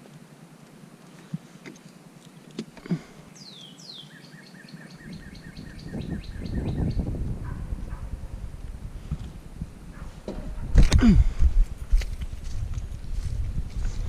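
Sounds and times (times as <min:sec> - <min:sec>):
songbird singing: 0:02.5 - 0:08.7
low rumbling noise: 0:05.2 - 0:14.0.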